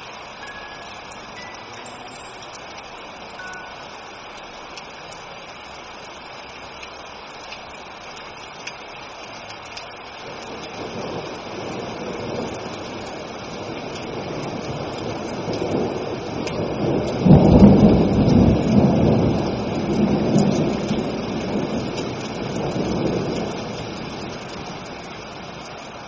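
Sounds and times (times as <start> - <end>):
rain hissing: 0.0 - 26.0
thunder rumbling: 10.1 - 26.0.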